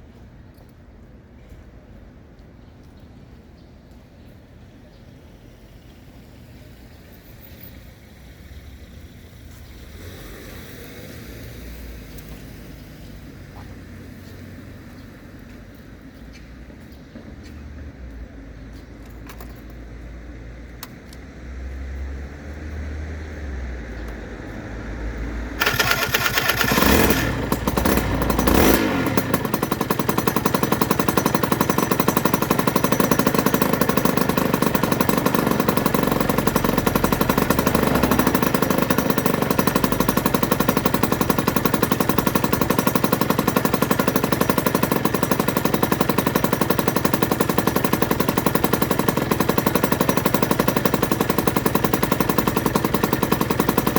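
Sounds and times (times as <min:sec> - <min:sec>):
motorcycle two-stroke engine: 0:25.5 - 0:53.9.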